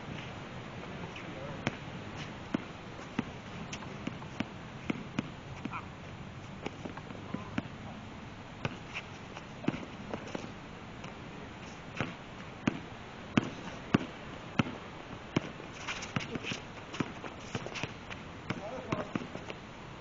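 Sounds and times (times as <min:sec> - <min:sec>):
basketball bouncing on court: 0:09.6 - 0:10.4, 0:12.0 - 0:14.8, 0:15.4 - 0:17.9, 0:18.5 - 0:19.5.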